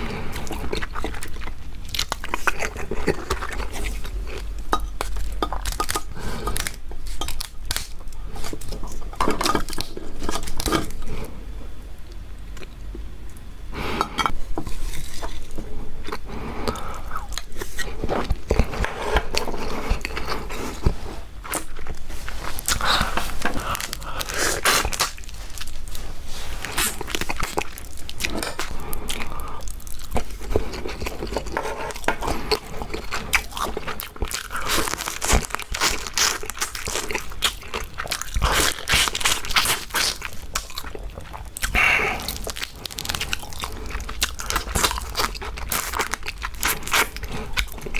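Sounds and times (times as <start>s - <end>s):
chewing: 0.0s - 11.1s, 14.0s - 47.9s
crunching through crab shells: 0.0s - 11.1s, 14.6s - 47.9s.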